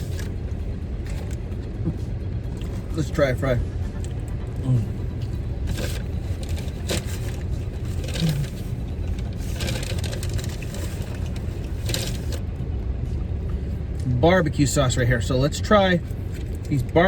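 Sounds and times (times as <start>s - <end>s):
low rumble: 0.0s - 14.2s
person crunching fries: 5.4s - 12.4s.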